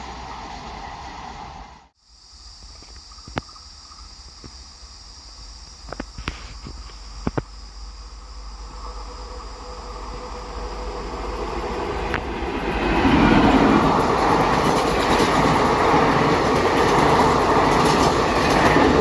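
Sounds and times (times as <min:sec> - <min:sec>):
train approaching: 0:00.0 - 0:02.0, 0:06.9 - 0:19.0.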